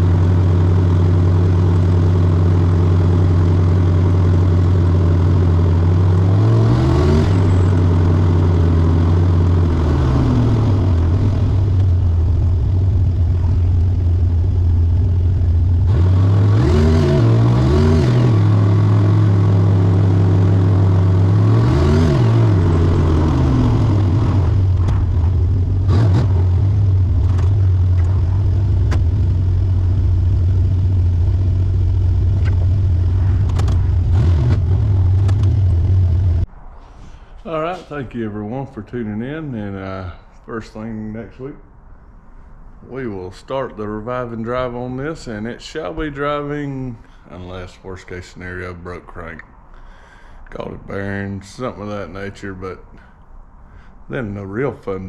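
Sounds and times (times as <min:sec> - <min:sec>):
car engine idling and revving: 0:00.0 - 0:36.5
sharp clicks: 0:32.4 - 0:32.8, 0:33.4 - 0:35.8.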